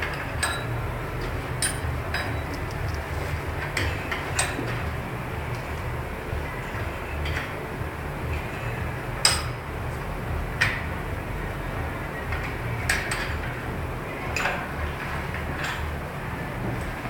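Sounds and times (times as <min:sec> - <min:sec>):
low workshop hum: 0:00.0 - 0:17.0
metal tools clinking: 0:01.6 - 0:02.4
sharp metallic knocks ringing: 0:01.6 - 0:02.6.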